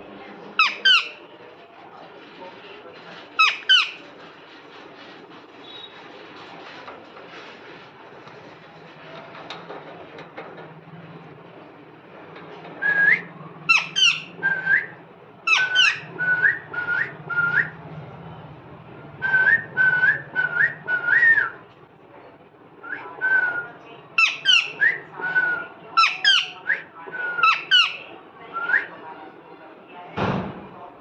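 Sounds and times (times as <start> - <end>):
parrot whistling and chirping: 3.4 - 4.0, 5.6 - 6.0, 12.8 - 14.9, 15.5 - 17.7, 22.9 - 28.0.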